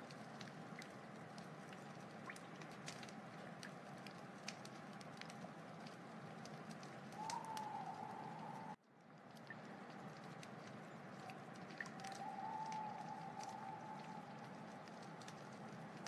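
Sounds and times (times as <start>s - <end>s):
wood fire crackling: 0.0s - 16.0s
thin whistling tone: 7.1s - 8.8s, 11.9s - 14.4s.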